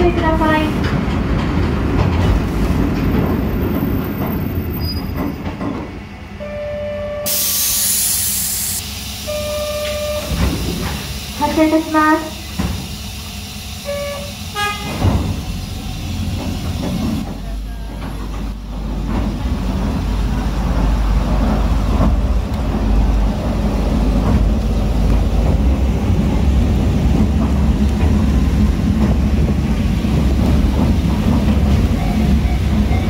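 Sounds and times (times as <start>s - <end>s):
brief pitched signal: 6.4s - 10.4s.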